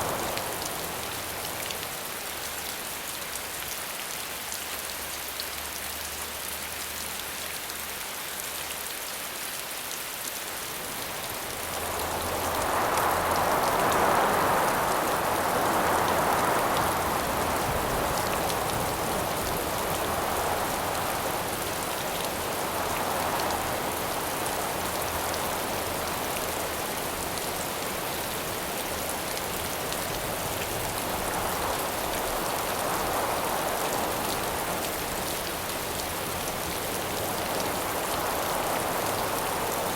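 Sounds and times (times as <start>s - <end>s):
howling wind gusts: 0.0s - 2.1s, 10.5s - 39.9s
steady rain falling: 0.0s - 39.9s.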